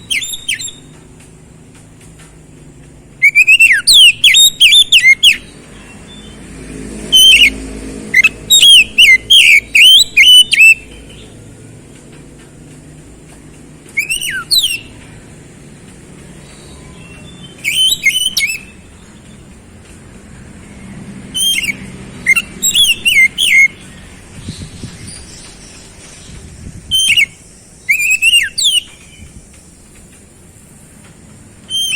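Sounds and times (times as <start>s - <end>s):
bird singing whistled notes: 0.0s - 1.0s, 3.2s - 6.4s, 7.0s - 7.6s, 8.2s - 11.4s, 13.9s - 15.0s, 16.4s - 19.6s, 21.3s - 30.0s, 31.6s - 31.9s.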